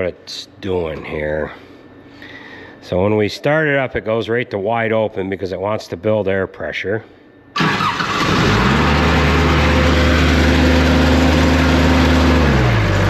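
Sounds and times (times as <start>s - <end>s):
air compressor engine revving: 7.6s - 13.0s.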